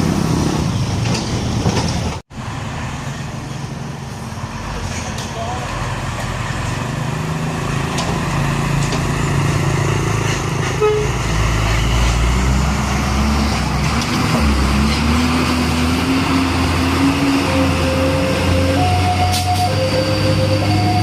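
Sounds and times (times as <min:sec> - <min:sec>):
diesel truck engine accelerating: 0:00.0 - 0:21.0
truck horn toot: 0:10.8 - 0:11.2, 0:17.2 - 0:21.0.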